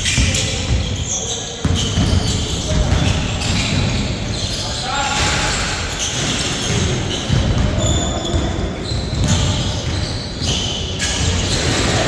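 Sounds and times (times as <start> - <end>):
basketball bouncing on court: 0.0 - 4.6, 5.2 - 11.9
shoe squeaks: 0.0 - 12.0.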